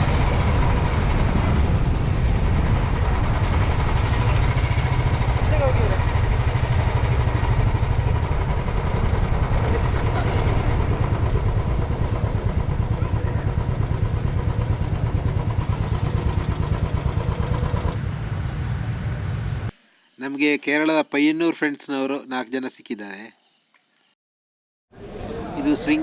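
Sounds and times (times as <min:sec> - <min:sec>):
motorcycle engine running: 0:00.0 - 0:19.7.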